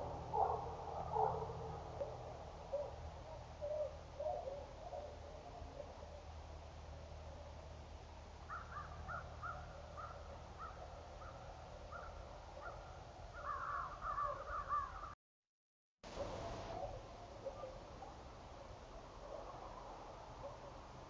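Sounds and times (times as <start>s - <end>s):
birds calling: 8.5s - 15.2s.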